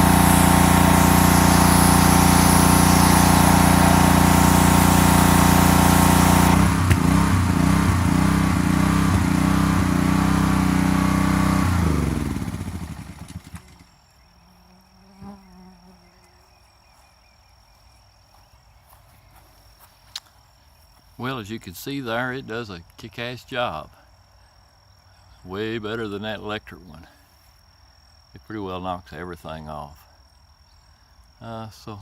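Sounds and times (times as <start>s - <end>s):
pressure washer engine running: 0.0s - 13.9s.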